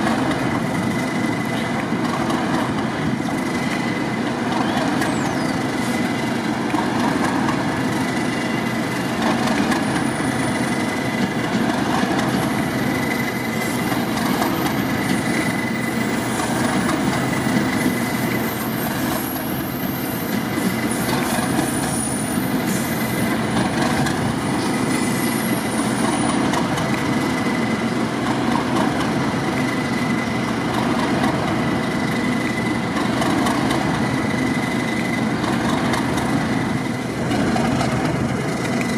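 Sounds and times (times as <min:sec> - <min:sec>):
train rumbling: 0:00.0 - 0:38.9.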